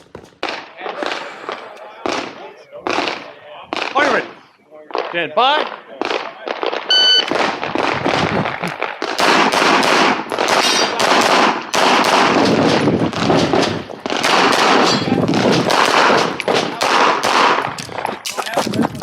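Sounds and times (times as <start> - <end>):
handgun shots in rapid strings: 9.2 - 17.7.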